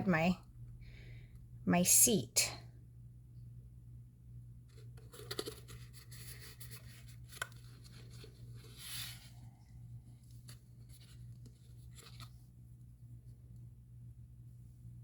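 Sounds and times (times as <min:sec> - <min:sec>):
low steady hum: 0:00.0 - 0:15.0
paper rustling: 0:04.7 - 0:09.4.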